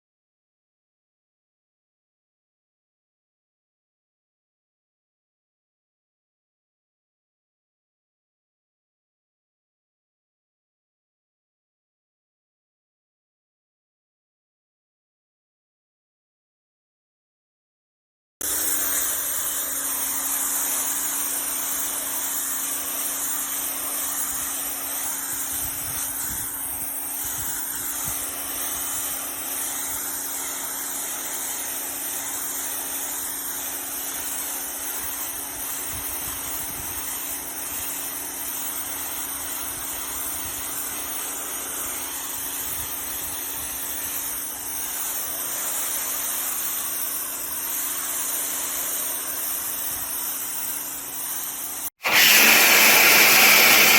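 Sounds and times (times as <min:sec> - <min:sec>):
motor hum: 0:18.4 - 0:21.1
pressure washer jet hissing: 0:52.0 - 0:53.9.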